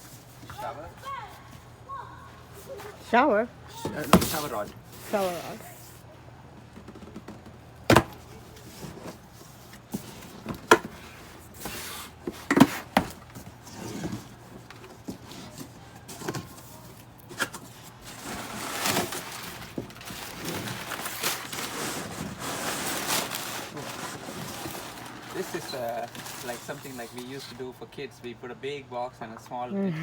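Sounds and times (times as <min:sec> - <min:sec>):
cardboard rustling: 0:02.0 - 0:27.7
cardboard box knocks and thumps: 0:03.7 - 0:04.7, 0:06.8 - 0:09.2, 0:09.9 - 0:11.0, 0:11.6 - 0:16.6.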